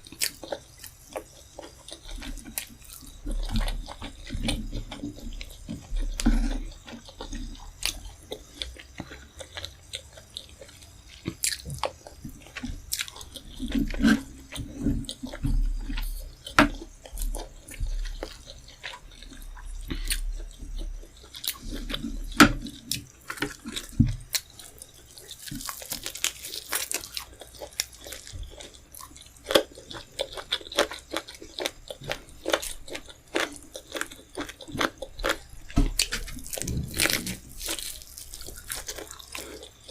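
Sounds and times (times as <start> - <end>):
person chewing and biting: 0.0 - 39.9
sharp crunches: 21.4 - 39.9.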